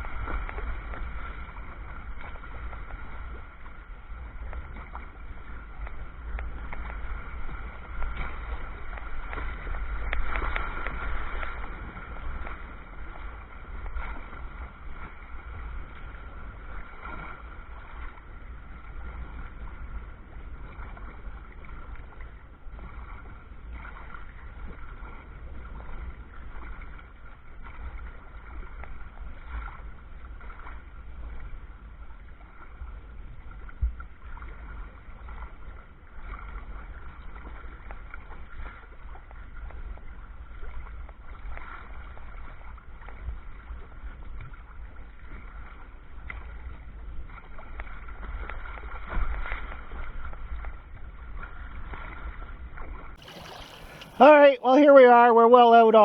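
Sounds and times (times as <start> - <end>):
wind rumble on microphone: 0.0 - 54.2
water sloshing around kayak: 0.0 - 56.0.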